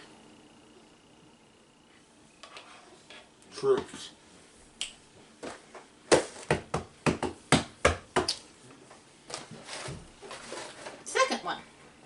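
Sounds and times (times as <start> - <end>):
sharp knocks on hard surface: 6.1 - 8.3.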